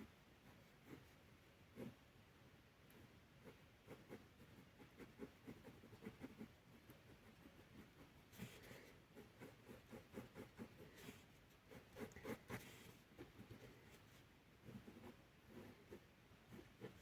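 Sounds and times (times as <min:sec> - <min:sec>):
drawing tool scratching on paper: 0:03.4 - 0:17.0.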